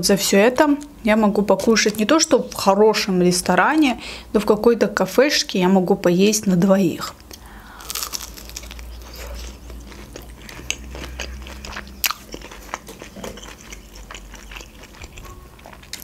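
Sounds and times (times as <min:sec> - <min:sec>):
crunchy chewing of fried food: 0:07.2 - 0:16.0.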